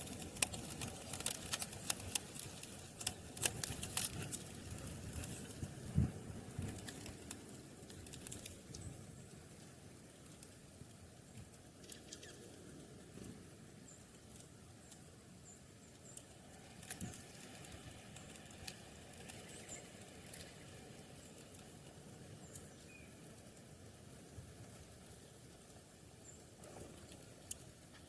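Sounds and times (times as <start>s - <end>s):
small birds chirping: 7.9s - 10.5s, 11.1s - 28.0s.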